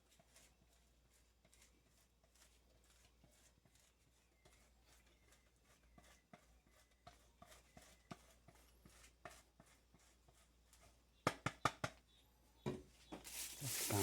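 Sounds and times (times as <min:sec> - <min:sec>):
taps on work surface: 0:11.2 - 0:12.0
hands handling food: 0:13.1 - 0:14.0.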